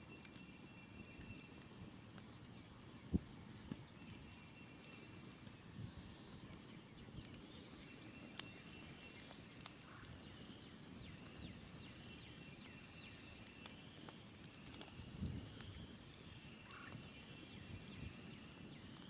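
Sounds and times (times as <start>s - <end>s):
birds chirping: 0.0s - 19.0s
campfire crackling and popping: 0.0s - 19.0s.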